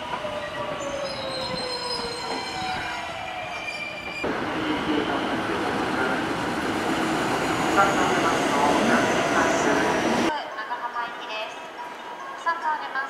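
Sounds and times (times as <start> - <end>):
train wheel squeal: 0.4 - 4.2
train rumble: 4.1 - 10.3.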